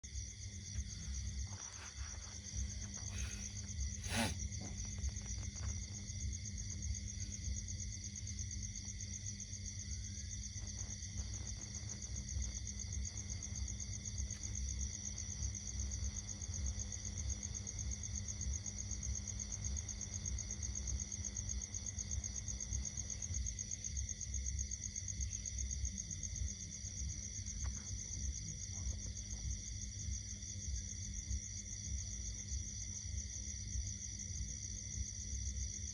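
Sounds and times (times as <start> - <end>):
insects trilling: 0.1 - 35.9.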